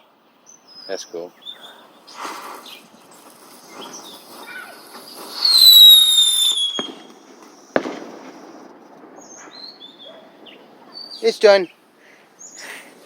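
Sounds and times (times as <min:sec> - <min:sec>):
firework whistling: 0:02.0 - 0:11.3
firework bangs: 0:02.1 - 0:11.6.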